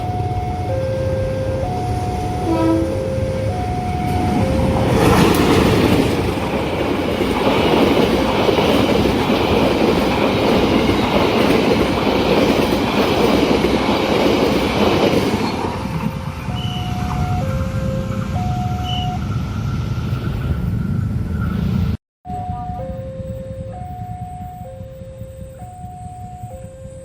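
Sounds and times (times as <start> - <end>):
two-tone crossing warning alarm: 0.0 - 20.0, 22.3 - 27.0
train wheels clattering and rumbling: 3.7 - 17.3.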